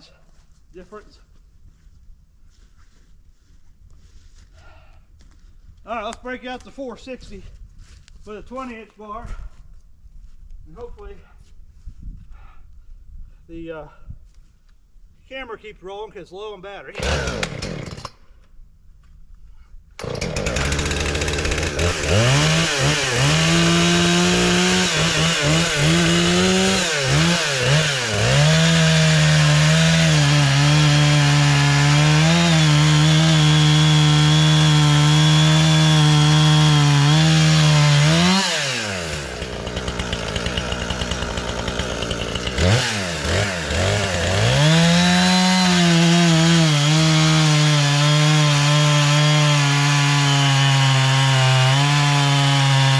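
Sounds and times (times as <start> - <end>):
chainsaw revving: 16.9 - 18.2, 20.0 - 52.9
chainsaw sawing through wood: 16.9 - 18.2, 20.0 - 52.9.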